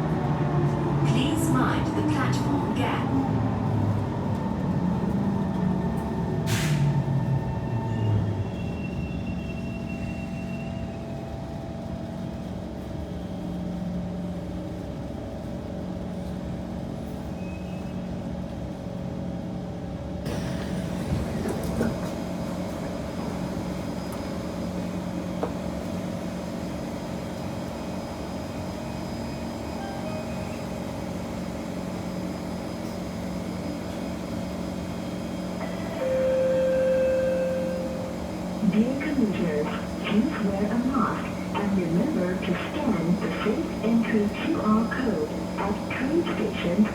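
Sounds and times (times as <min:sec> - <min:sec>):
train equipment humming: 0:20.3 - 0:46.9
loud steady tone: 0:35.6 - 0:46.9.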